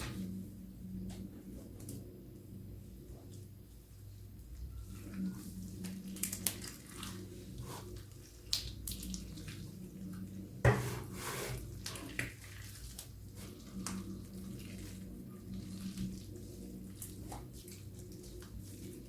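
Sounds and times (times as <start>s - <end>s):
steady low hum: 0.0s - 19.0s
slime squishing with crackles and pops: 4.4s - 10.3s.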